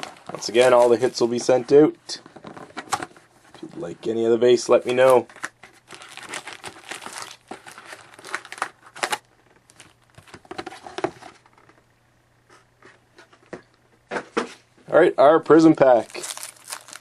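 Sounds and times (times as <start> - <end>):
plastic and foil packaging crinkling: 0.0 - 1.7, 4.7 - 11.4, 15.9 - 17.0
faint steady low hum: 0.0 - 17.0.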